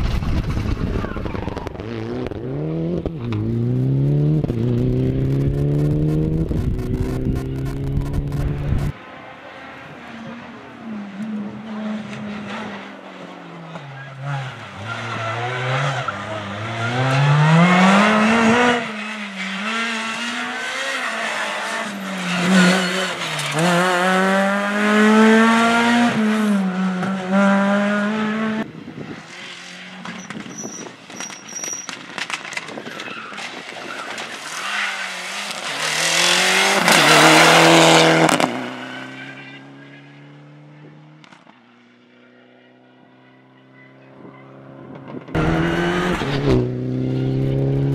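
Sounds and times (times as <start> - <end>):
rally car engine revving hard: 1.2 - 8.9, 14.2 - 28.7, 34.9 - 39.2, 45.3 - 47.9.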